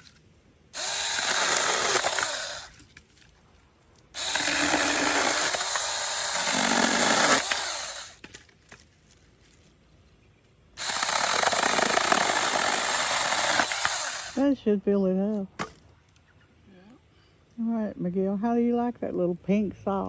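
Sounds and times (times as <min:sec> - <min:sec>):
small chainsaw cutting sticks: 0:00.8 - 0:03.4, 0:04.0 - 0:09.6, 0:10.8 - 0:14.4.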